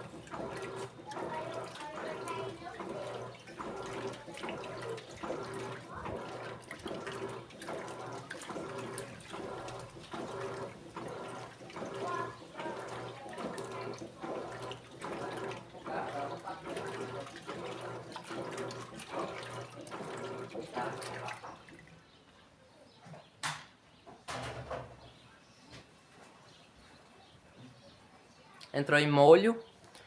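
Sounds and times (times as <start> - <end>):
washing machine hum: 0.0 - 22.2
water sloshing in washing machine: 0.0 - 22.2.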